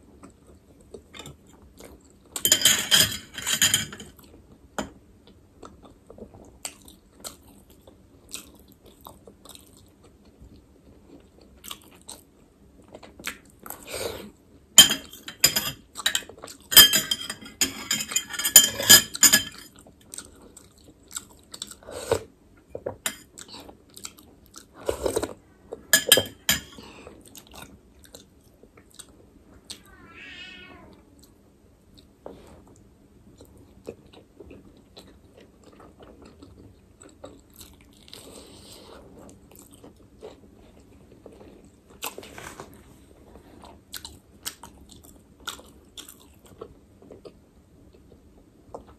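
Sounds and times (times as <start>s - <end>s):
person chewing food: 5.2s - 14.3s, 19.7s - 25.9s, 26.7s - 29.9s, 32.0s - 42.7s, 43.3s - 48.9s.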